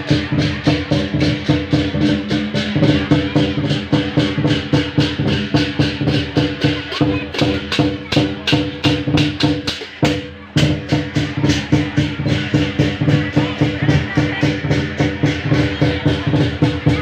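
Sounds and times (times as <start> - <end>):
drums and gongs ensemble: 0.0 - 17.0.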